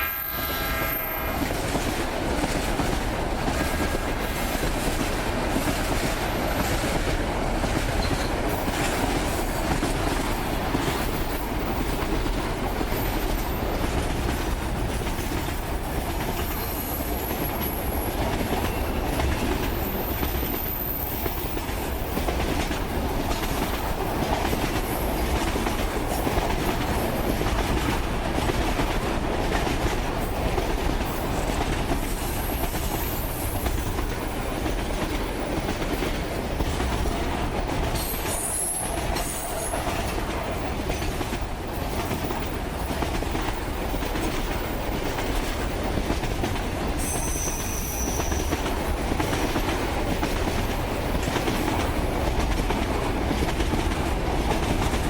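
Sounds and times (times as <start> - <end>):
train wheels clattering: 0.0 - 55.0
wheel squeals: 47.0 - 48.6.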